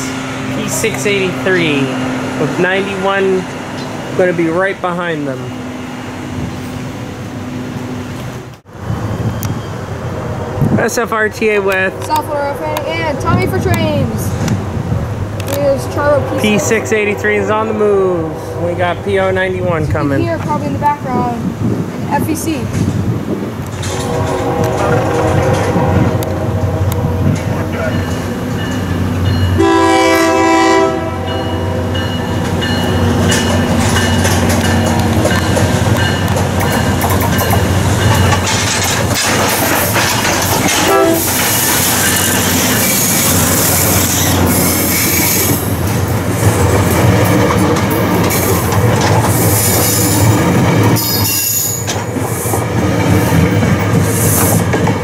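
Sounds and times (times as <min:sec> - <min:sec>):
train passing with wheel clatter: 0:00.0 - 0:55.0
train horn: 0:23.8 - 0:27.5, 0:29.6 - 0:32.3, 0:40.7 - 0:41.5.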